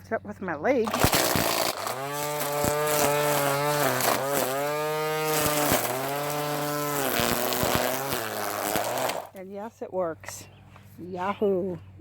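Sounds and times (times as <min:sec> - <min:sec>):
string trimmer motor humming: 0:00.8 - 0:09.4.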